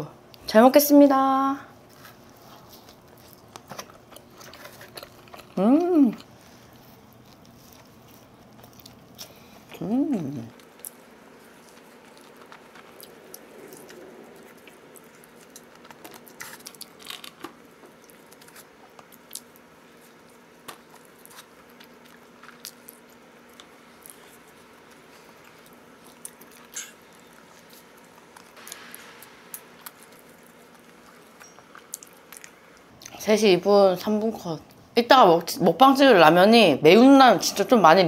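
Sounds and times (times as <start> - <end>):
person chewing pizza: 1.8 - 33.2
crust crunches and mouth clicks: 2.0 - 9.8, 10.5 - 33.2.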